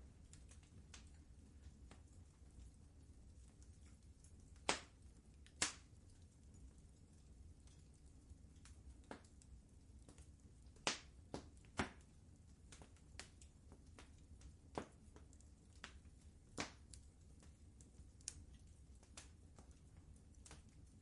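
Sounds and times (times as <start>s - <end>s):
faint low rumble: 0.0s - 21.0s
wood fire crackling: 0.0s - 21.0s.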